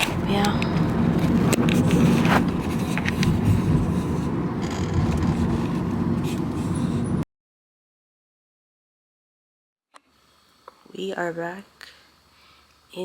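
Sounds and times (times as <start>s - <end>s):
car road noise rumble: 0.0s - 7.2s.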